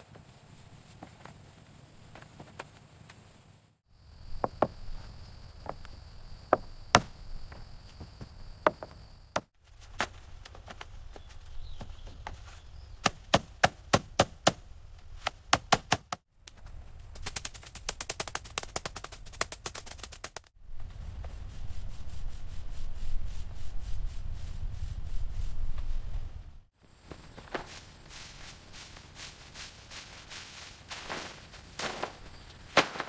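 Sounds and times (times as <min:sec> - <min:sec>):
sharp knocks on bamboo: 0:06.5 - 0:07.2, 0:08.6 - 0:10.1, 0:13.0 - 0:14.6, 0:15.2 - 0:16.2.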